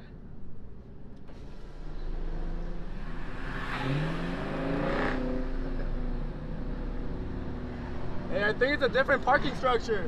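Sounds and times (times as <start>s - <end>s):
car engine revving: 1.4s - 8.6s.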